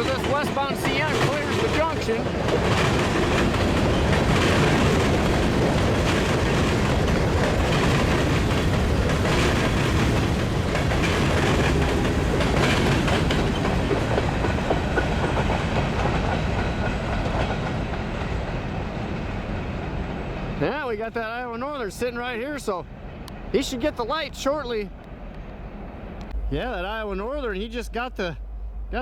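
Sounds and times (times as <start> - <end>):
wheels clacking over track: 0.0 - 19.2
freight train cars rolling: 0.0 - 29.0.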